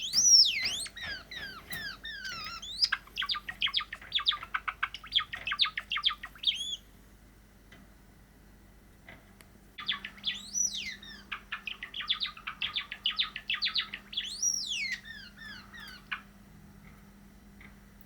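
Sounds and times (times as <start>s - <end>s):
sparrow clicking notes: 0.0s - 6.6s.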